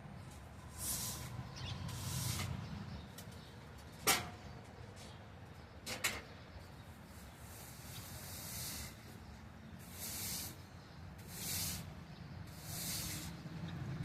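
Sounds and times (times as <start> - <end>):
brushing swishes: 0.6 - 2.7, 9.8 - 13.6.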